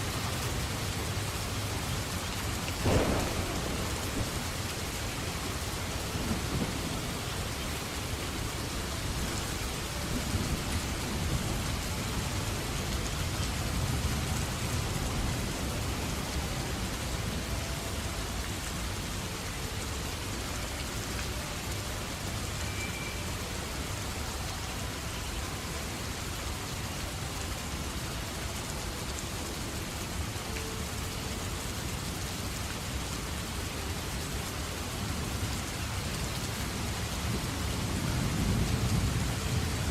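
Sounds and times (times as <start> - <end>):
steady rain: 0.0 - 39.9
thunder rumbling: 2.5 - 11.7.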